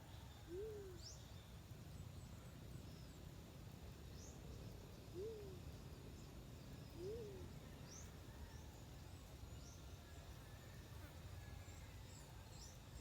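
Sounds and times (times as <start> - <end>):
small birds chirping: 0.0 - 13.0
dove cooing: 0.5 - 1.1, 5.1 - 5.7, 7.0 - 7.6.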